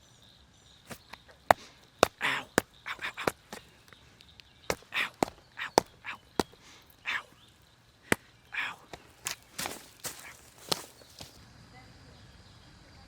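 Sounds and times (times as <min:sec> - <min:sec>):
short rustling brushes: 0:00.9 - 0:03.8, 0:08.1 - 0:11.4.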